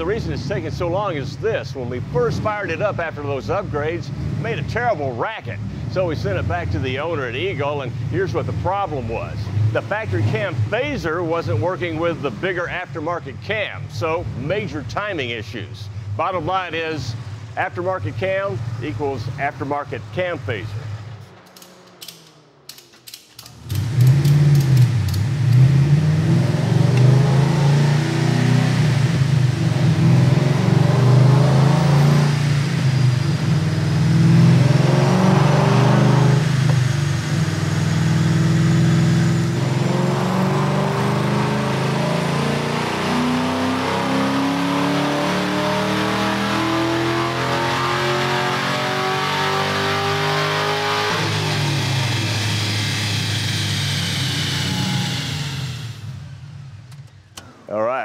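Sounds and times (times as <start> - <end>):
car engine revving on a dyno: 0.0 - 13.3, 23.5 - 56.9
high whine: 51.2 - 56.6.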